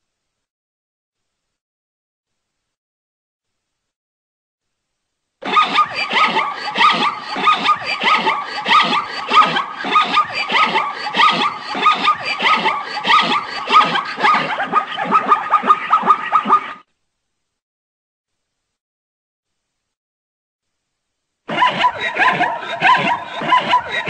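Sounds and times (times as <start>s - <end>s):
zebra barking yelps: 5.4s - 16.8s, 21.5s - 24.0s.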